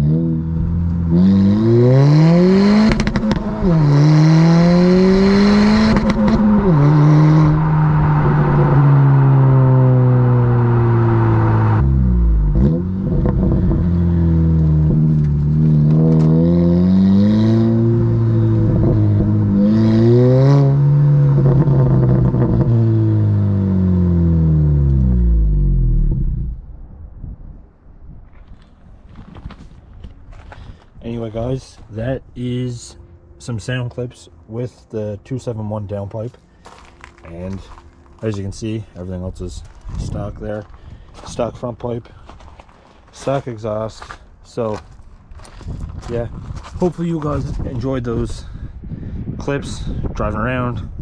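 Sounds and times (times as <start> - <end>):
car engine revving: 0.0 - 26.6.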